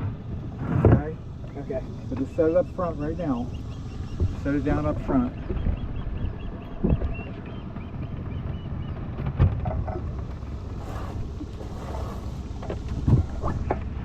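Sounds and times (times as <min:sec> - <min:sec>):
boat motor running: 0:00.0 - 0:14.0
wind buffeting microphone: 0:00.0 - 0:14.0
sharp knocks on boat: 0:06.7 - 0:07.3, 0:09.2 - 0:10.0.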